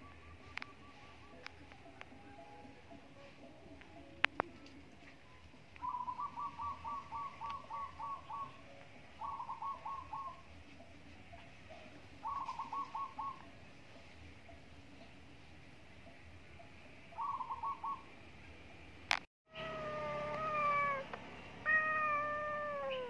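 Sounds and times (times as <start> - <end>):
bird calling repeated notes: 5.8 - 10.5, 12.2 - 13.6, 17.1 - 18.1.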